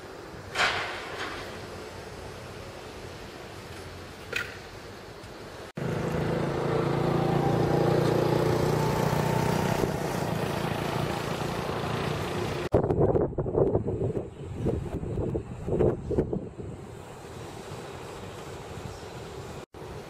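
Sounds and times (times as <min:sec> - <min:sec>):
vehicle engine running: 0:05.8 - 0:12.7.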